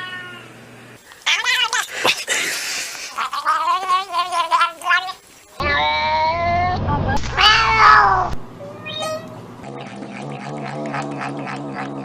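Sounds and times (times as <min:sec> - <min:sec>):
cat yowling: 0:00.0 - 0:00.4, 0:05.6 - 0:09.4.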